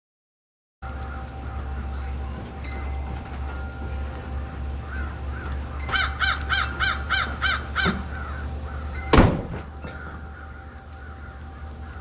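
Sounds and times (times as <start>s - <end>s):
bird calling: 0.8s - 12.0s.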